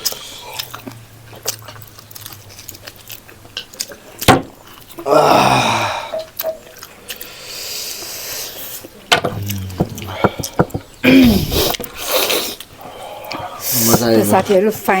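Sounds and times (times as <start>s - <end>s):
mouth clicks and chewing: 0.0s - 5.1s, 6.1s - 13.6s
loud breathy vocal sound: 5.1s - 6.2s, 9.3s - 13.6s.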